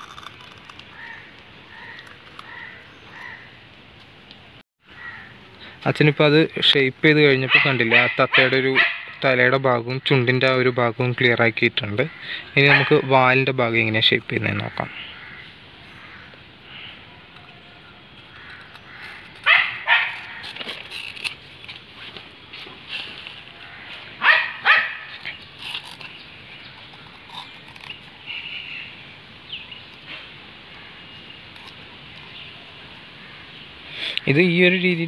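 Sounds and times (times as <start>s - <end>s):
dog barking: 7.5s - 9.1s, 12.7s - 13.0s, 19.5s - 20.2s, 24.2s - 25.1s.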